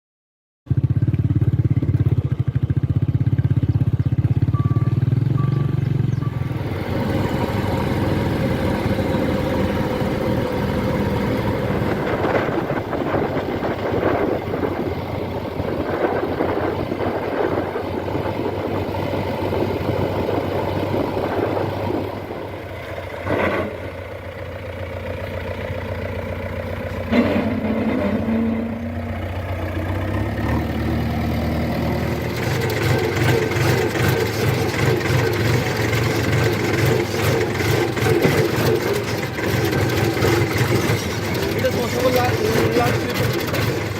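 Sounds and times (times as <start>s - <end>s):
diesel engines under load: 0.7s - 43.9s.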